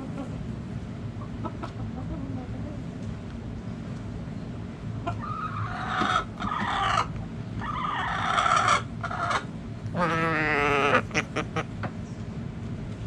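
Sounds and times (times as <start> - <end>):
low background rumble: 0.0 - 13.0
roosters crowing: 5.1 - 11.7.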